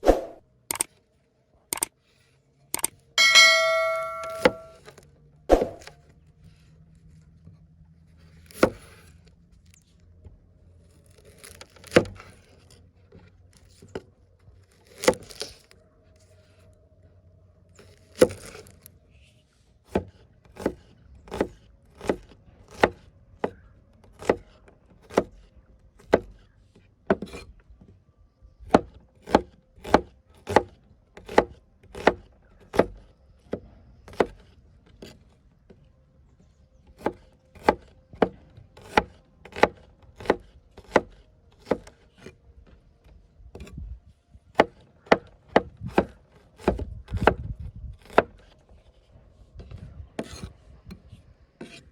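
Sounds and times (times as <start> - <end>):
knife chopping on wooden board: 24.2 - 25.3, 28.7 - 33.1, 34.1 - 34.4, 37.0 - 42.3.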